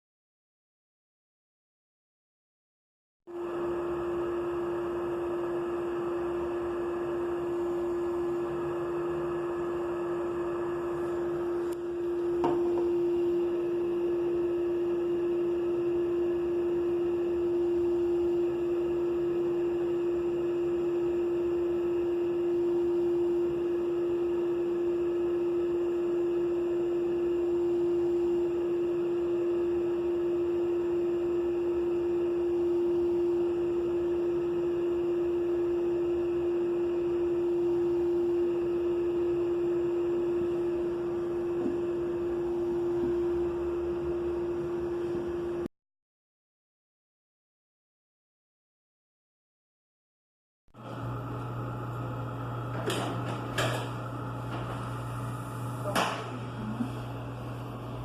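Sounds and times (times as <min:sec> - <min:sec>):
steady single-pitched tone: 0:03.3 - 0:45.7.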